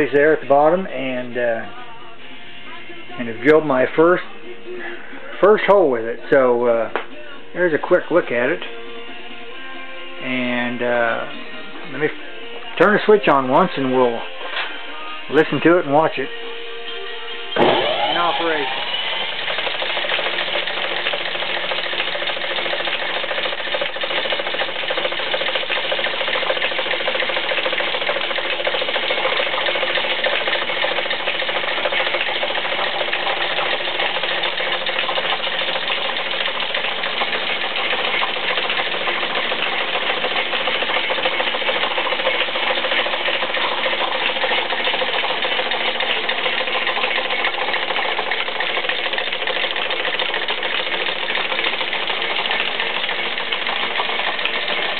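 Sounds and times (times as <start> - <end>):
drill press whirring and clattering: 17.5 - 25.7.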